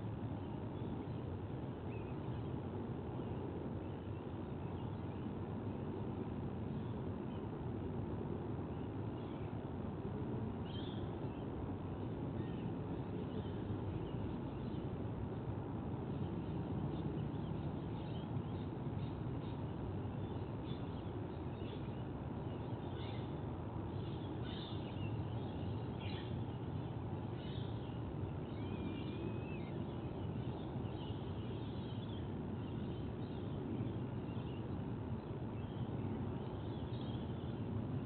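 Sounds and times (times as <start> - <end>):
low rumble of outdoor air: 0.0 - 38.0
bird calls and chirps: 10.6 - 11.5, 16.2 - 38.0.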